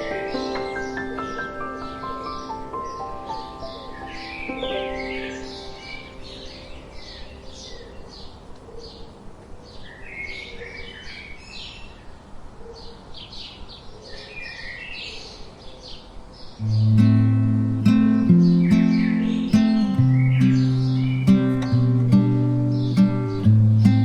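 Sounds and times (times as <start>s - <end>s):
plucked acoustic guitar: 0.0s - 7.4s, 16.6s - 24.0s
soft background hiss: 0.0s - 10.6s, 16.3s - 24.0s
small birds chirping: 0.0s - 24.0s
music note: 16.6s - 22.2s.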